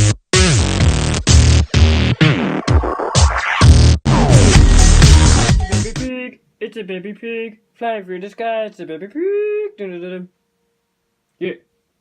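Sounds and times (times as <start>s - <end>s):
deep bass: 0.0s - 2.4s, 3.6s - 6.1s
dubstep music: 0.0s - 6.1s.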